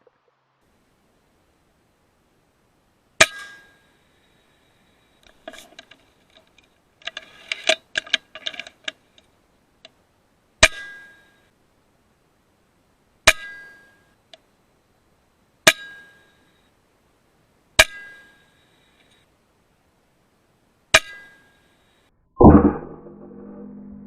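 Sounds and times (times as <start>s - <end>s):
small clicks and clinks: 5.2s - 10.0s.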